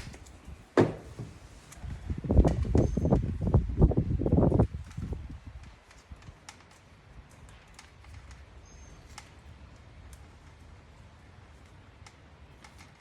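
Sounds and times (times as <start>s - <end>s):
wires and connectors clicking: 4.6s - 13.0s.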